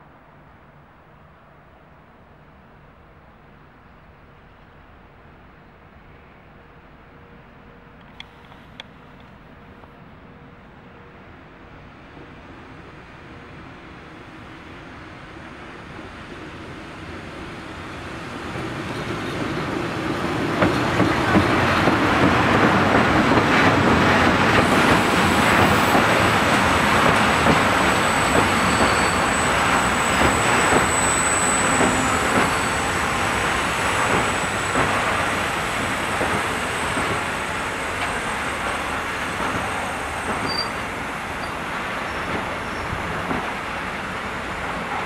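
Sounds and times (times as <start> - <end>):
train wheels clattering on rails: 18.4 - 45.0
thin high squeal: 27.7 - 34.8, 40.4 - 42.8.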